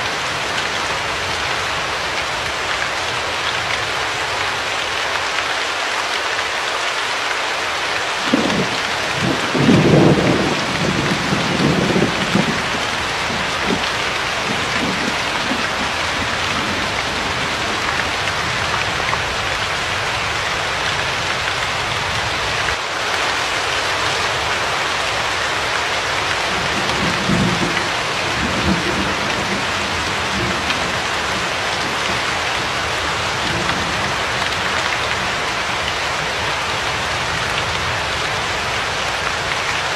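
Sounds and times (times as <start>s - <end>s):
heavy rain hissing: 0.0s - 39.9s
thunder rumbling: 8.2s - 20.3s, 26.4s - 38.1s.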